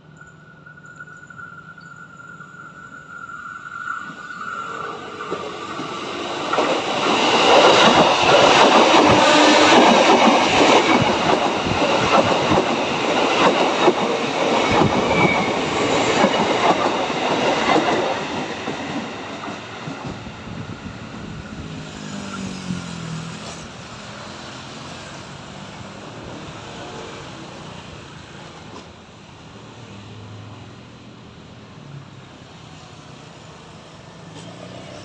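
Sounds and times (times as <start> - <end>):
train wheels clattering over rail joints: 5.2 - 20.3.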